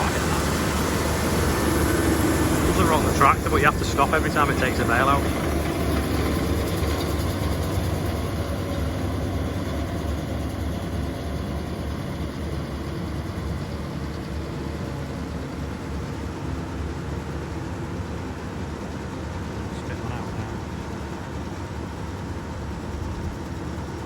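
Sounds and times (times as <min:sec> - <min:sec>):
engine running low rumble: 0:00.0 - 0:24.0.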